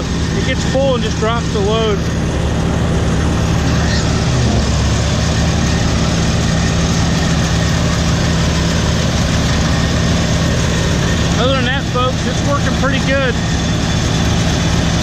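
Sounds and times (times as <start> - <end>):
combine harvester drone: 0.0 - 15.0.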